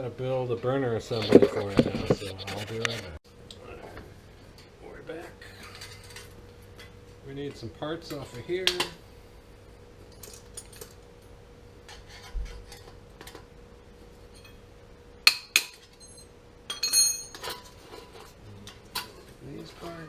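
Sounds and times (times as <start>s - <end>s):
small metal parts clinking: 10.1s - 11.0s, 15.7s - 17.7s.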